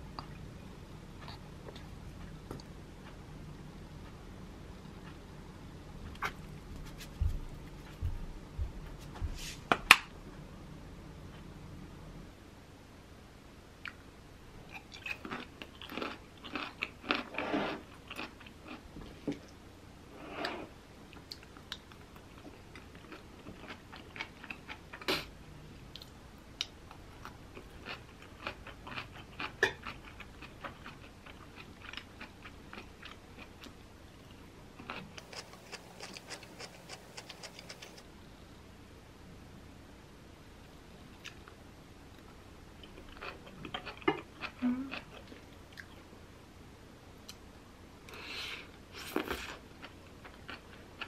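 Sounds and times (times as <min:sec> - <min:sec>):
person chewing crunchy food: 0:14.7 - 0:18.8, 0:22.4 - 0:25.2, 0:27.2 - 0:33.7, 0:34.8 - 0:38.0, 0:42.8 - 0:45.9.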